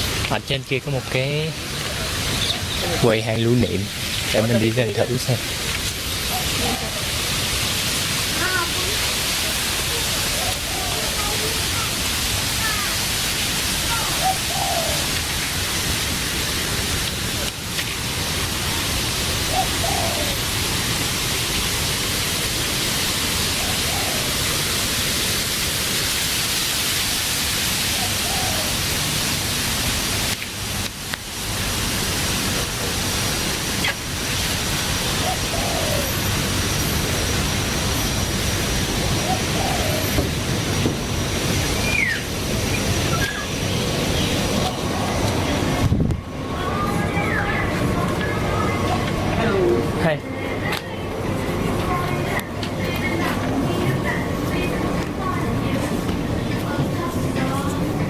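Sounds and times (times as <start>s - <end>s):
loud rushing hiss: 0.0s - 50.3s
faint bird calls: 13.9s - 15.2s, 19.5s - 20.4s, 41.8s - 44.8s.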